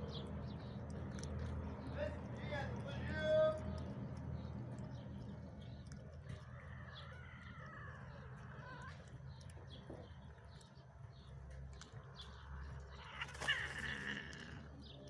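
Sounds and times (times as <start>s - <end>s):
high-pitched animal calls: 12.9s - 14.7s.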